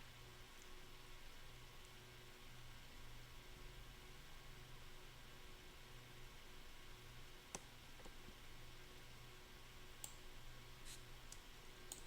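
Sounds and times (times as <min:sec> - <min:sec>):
low steady hum: 0:00.0 - 0:12.0
faint clicks: 0:11.3 - 0:12.0.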